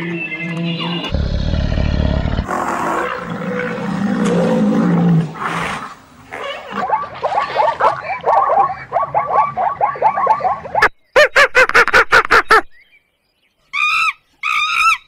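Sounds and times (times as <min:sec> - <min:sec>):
deep animal rumble: 0:01.1 - 0:05.4
low growling roar: 0:01.1 - 0:06.0.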